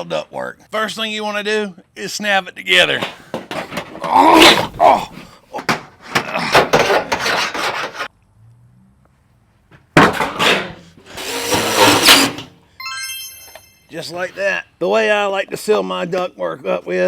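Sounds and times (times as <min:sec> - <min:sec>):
sheet metal scraping and clicking: 0:05.7 - 0:08.1.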